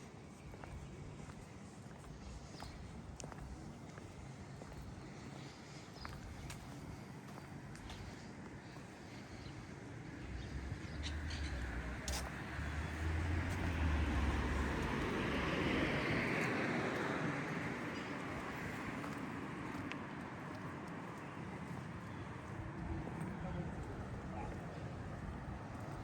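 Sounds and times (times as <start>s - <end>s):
vehicle driving past: 11.0s - 17.6s.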